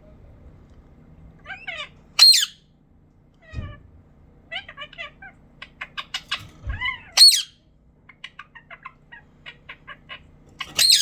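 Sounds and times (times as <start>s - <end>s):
bird squawk: 1.5s - 2.6s, 4.6s - 11.0s
bird chirping: 2.2s - 2.6s, 7.2s - 7.5s, 8.4s - 11.0s.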